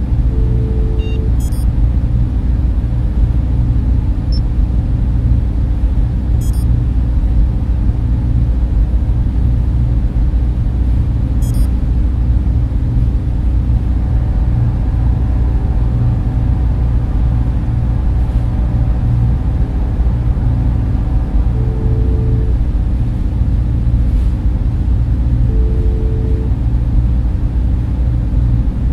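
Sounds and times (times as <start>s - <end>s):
faint steady tones: 0.0s - 1.8s, 20.6s - 22.9s, 25.3s - 26.8s
server fans droning: 0.0s - 28.9s.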